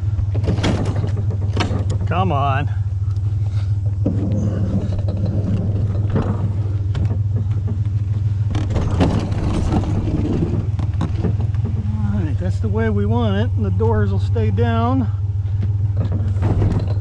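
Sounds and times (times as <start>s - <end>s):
vehicle engine idling: 0.0s - 17.0s
scrap metal clattering: 3.4s - 12.3s.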